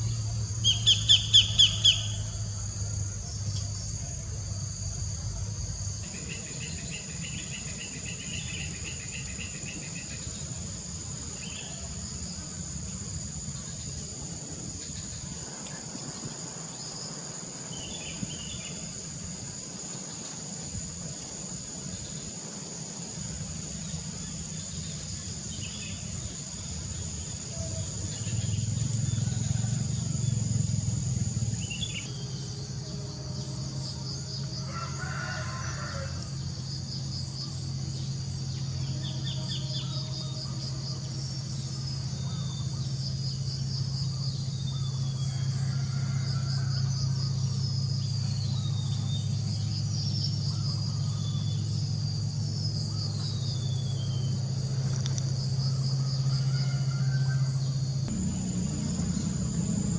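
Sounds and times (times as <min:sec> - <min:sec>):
crickets and insects chirring: 0:00.0 - 0:59.9
steady low hum: 0:00.0 - 0:59.9.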